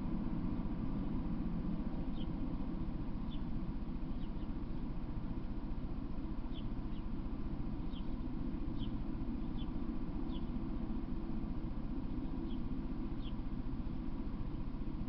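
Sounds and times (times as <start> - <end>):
low background rumble: 0.0 - 15.0
small bird chirping: 2.1 - 2.4, 4.1 - 4.6, 6.5 - 7.1, 7.8 - 10.6, 12.2 - 13.4.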